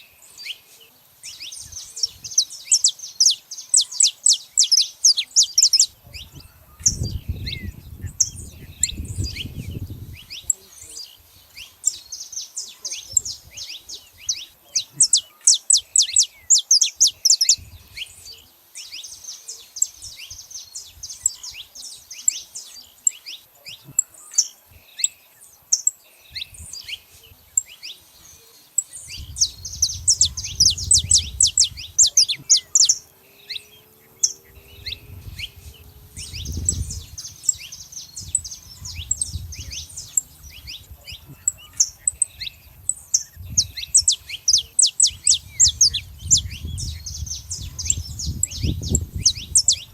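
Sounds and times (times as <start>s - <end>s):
finches chirping: 0.0s - 49.9s
low rumble: 29.2s - 32.1s, 34.4s - 40.6s.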